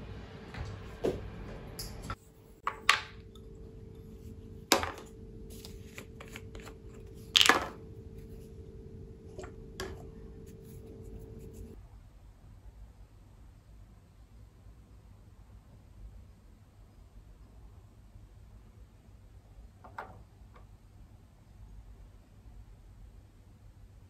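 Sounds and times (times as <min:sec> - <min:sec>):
appliance humming: 0:00.0 - 0:11.8
objects knocking and clattering: 0:00.6 - 0:03.6, 0:04.6 - 0:05.2, 0:06.1 - 0:07.9, 0:09.3 - 0:10.2.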